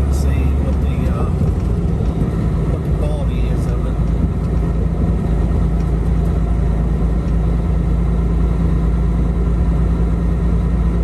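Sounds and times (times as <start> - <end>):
road noise: 0.0 - 11.0
truck diesel engine droning: 0.0 - 11.0.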